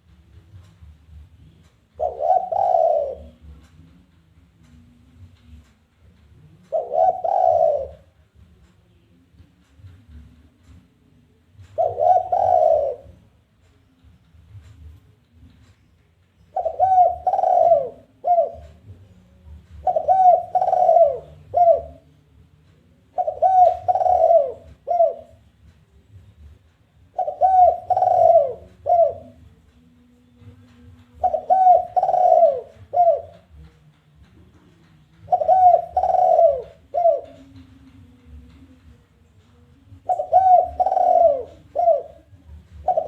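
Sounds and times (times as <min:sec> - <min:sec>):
dove cooing: 0:02.0 - 0:04.1, 0:06.5 - 0:08.5, 0:11.6 - 0:13.4, 0:16.5 - 0:22.1, 0:23.0 - 0:25.5, 0:27.0 - 0:29.6, 0:30.5 - 0:33.7, 0:35.0 - 0:38.8, 0:39.9 - 0:43.0.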